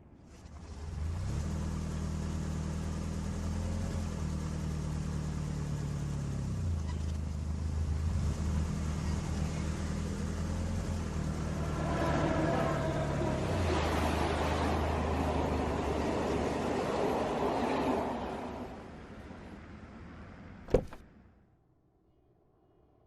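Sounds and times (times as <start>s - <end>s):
vehicle engine running: 0.4s - 15.6s.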